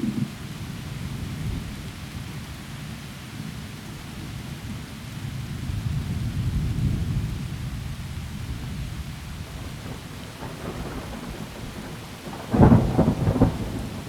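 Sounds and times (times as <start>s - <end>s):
heavy rain falling through trees: 0.0s - 14.0s
low rolling thunder: 5.6s - 14.0s.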